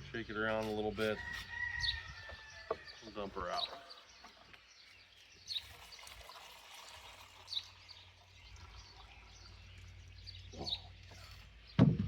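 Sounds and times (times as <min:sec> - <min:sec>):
gasoline trickling and splashing: 0:04.3 - 0:11.7.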